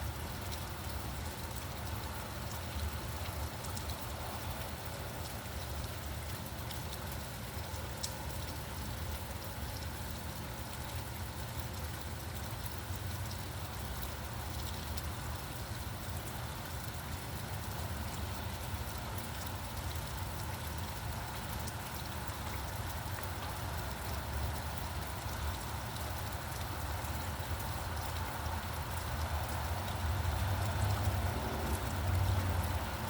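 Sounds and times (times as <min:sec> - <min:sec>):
steady rain: 0:00.0 - 0:33.0
distant traffic rumble: 0:28.0 - 0:33.0.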